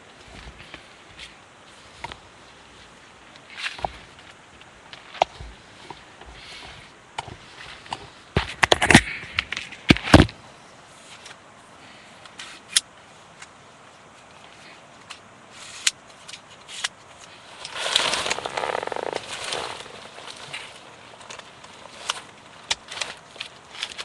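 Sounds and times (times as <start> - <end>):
footsteps on rocky trail: 0.0 - 3.0, 3.7 - 10.4, 17.4 - 24.0.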